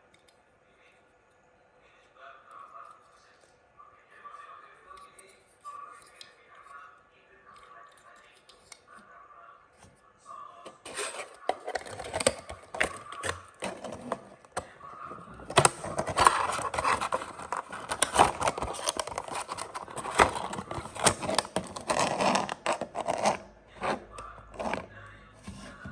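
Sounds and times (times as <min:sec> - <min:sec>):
hands handling toy car: 0:10.7 - 0:14.8, 0:15.4 - 0:25.9.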